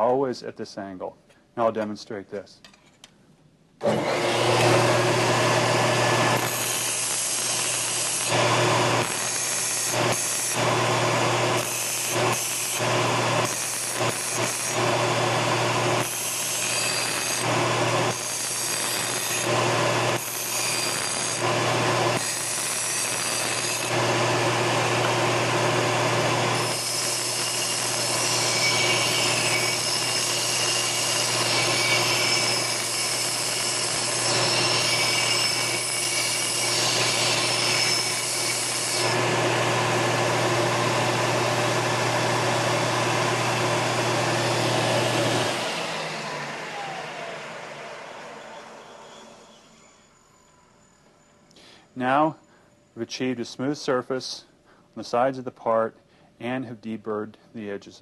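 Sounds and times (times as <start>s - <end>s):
belt sander hum: 3.8s - 18.1s, 23.8s - 30.6s, 39.0s - 50.0s
metal grinding on sanding belt: 3.9s - 39.3s.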